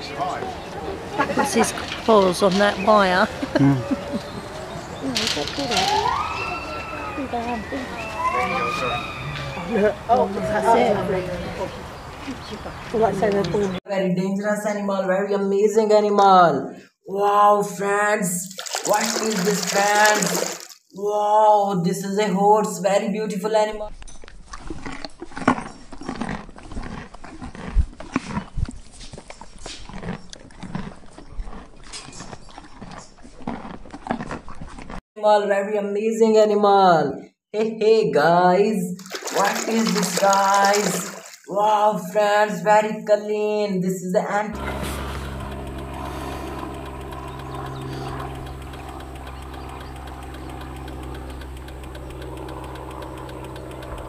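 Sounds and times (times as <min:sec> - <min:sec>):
engine idling: 0:44.6 - 0:54.0
faint regular ticking: 0:44.6 - 0:54.0.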